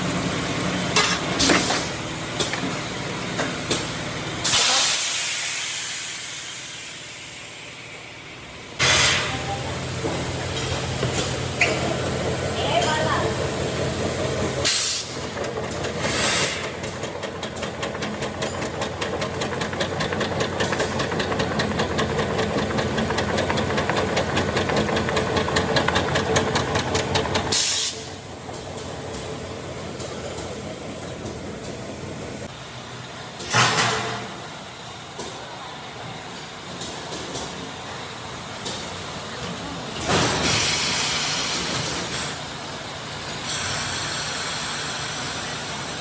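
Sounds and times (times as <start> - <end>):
hiss of released air: 4.4 - 7.8, 8.8 - 10.4, 16.0 - 16.6, 27.5 - 28.1, 43.4 - 45.4
machinery rhythmic clatter: 10.0 - 32.2.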